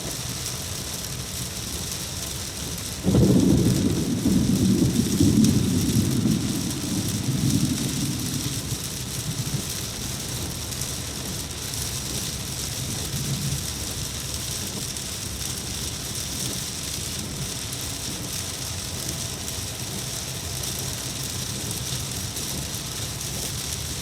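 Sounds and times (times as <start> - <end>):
steady rain falling: 0.0 - 24.0
low rumble: 3.1 - 10.6.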